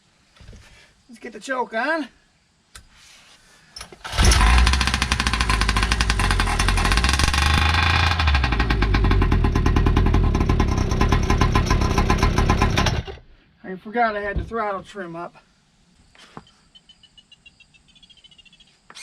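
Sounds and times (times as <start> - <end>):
two-stroke model engine running: 4.0 - 13.2.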